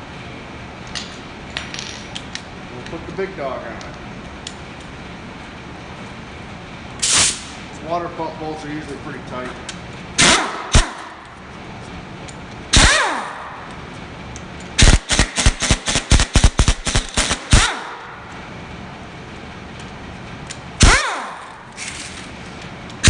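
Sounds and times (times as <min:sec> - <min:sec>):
impact wrench hammering: 0:10.2 - 0:11.2, 0:12.7 - 0:13.4, 0:14.8 - 0:18.1, 0:20.8 - 0:21.6.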